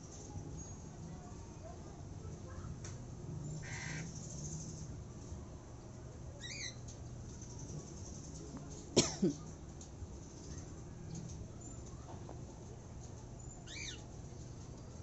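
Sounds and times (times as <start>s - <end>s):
harsh parrot calls: 3.6s - 4.2s
parrots chirping: 3.6s - 4.8s, 6.4s - 6.8s, 13.6s - 14.1s.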